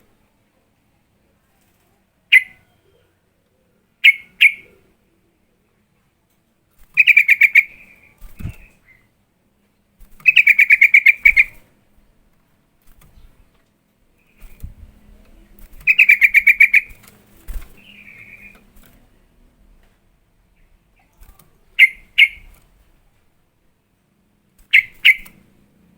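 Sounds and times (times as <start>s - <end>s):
bird single calls: 2.3s - 3.0s, 4.0s - 4.8s, 15.8s - 17.0s, 21.8s - 22.5s, 24.7s - 25.4s.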